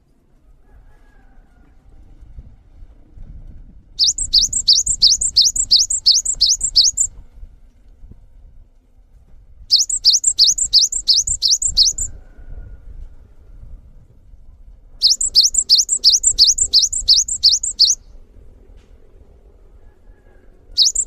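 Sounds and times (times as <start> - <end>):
songbird whistling high notes: 4.0 - 7.1, 9.7 - 12.1, 15.0 - 18.0, 20.8 - 21.0.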